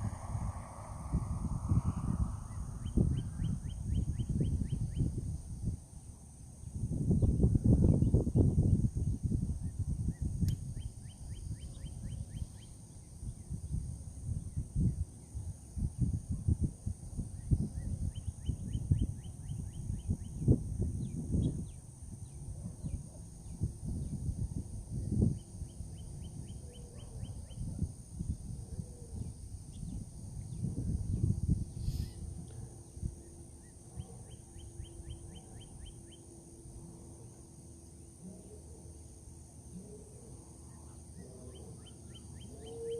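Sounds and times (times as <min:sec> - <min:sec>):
low rumbling noise: 0:00.0 - 0:03.9
wind buffeting microphone: 0:00.0 - 0:05.9, 0:06.6 - 0:35.9
insect drone: 0:00.0 - 0:42.9
bird chirping: 0:33.6 - 0:36.3, 0:40.7 - 0:42.9.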